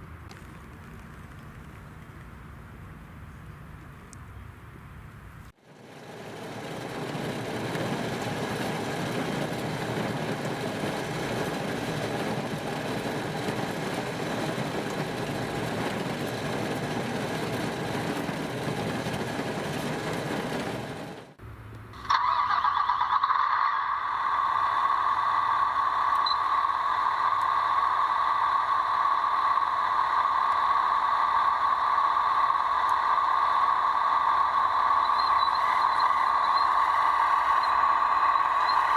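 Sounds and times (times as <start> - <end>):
high-pitched whine: 21.6 - 38.9.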